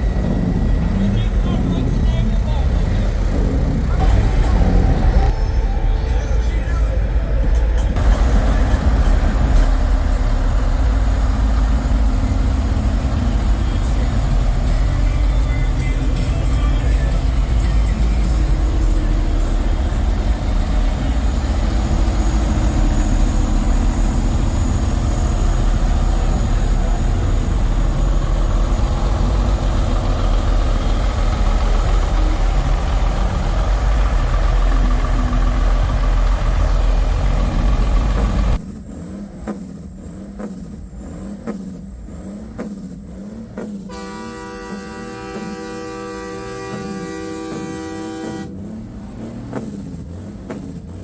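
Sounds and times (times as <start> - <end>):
steady pitched tone: 0.0 - 38.6
truck diesel engine running: 0.0 - 51.0.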